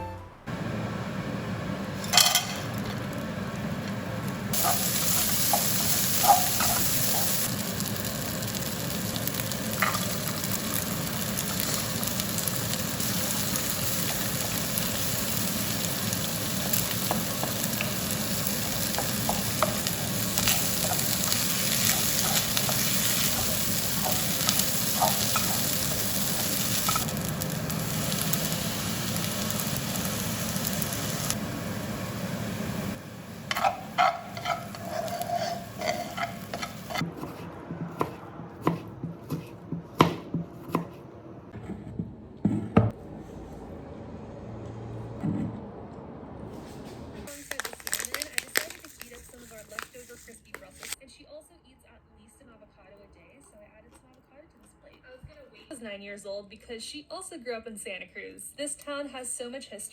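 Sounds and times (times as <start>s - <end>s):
food sizzling in a frying pan: 4.4s - 37.0s.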